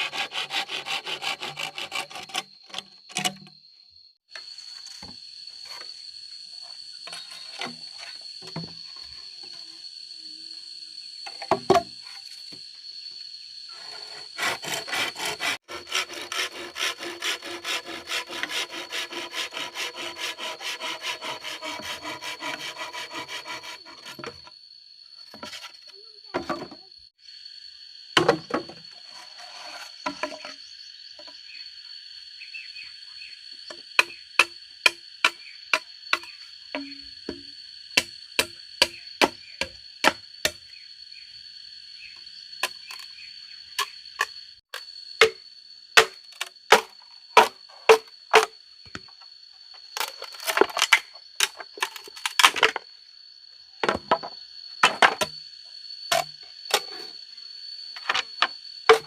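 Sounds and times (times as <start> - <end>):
tool striking wood: 34.0 - 40.6.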